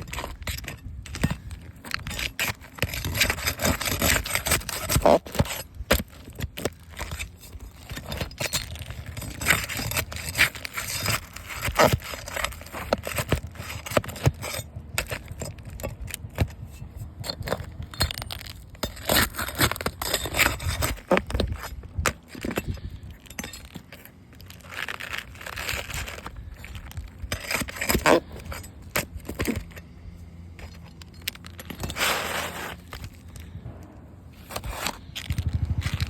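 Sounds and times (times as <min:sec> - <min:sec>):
hard objects scraping and clinking: 0:00.0 - 0:33.6, 0:34.4 - 0:36.0.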